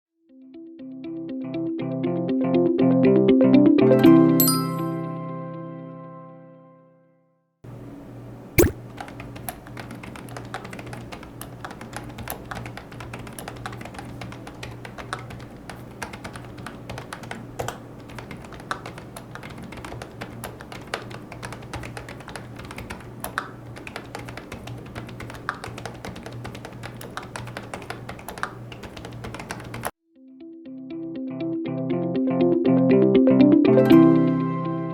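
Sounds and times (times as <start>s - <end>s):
fast keyboard typing: 8.6s - 29.9s.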